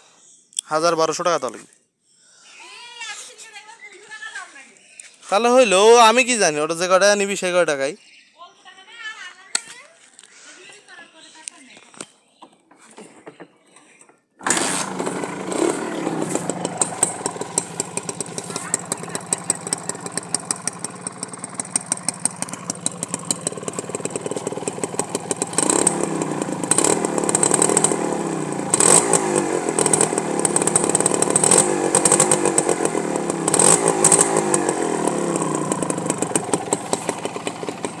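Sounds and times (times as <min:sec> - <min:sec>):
motorcycle engine idling and revving: 0:14.4 - 0:38.0.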